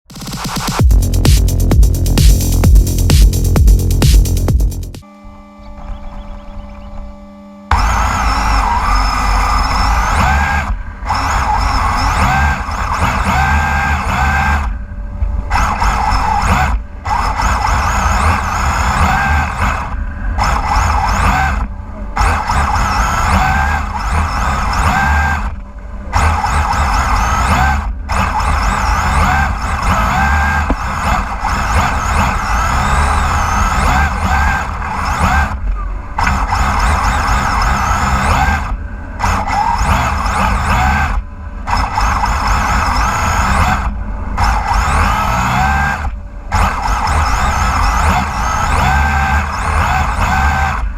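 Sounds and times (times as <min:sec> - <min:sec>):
steady low rumble: 0:00.5 - 0:05.1, 0:05.7 - 0:13.3, 0:13.9 - 0:17.3, 0:17.9 - 0:24.7, 0:43.8 - 0:44.4
electric motor whining: 0:01.0 - 0:50.9
tyres spinning: 0:15.5 - 0:50.9.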